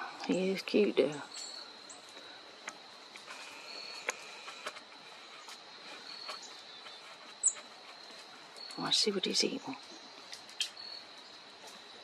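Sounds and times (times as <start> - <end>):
high-pitched insect drone: 0.0 - 10.0
high bird chirp: 5.4 - 7.8.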